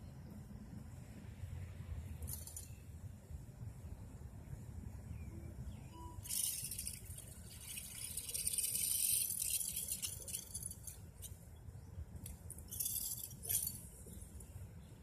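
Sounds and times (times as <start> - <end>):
metallic jingling rattle: 2.2 - 2.8, 6.2 - 11.3, 12.6 - 14.2.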